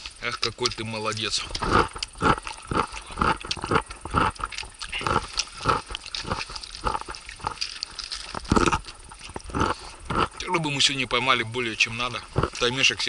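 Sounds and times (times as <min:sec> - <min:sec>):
person chewing crunchy pickle: 0:00.0 - 0:13.0.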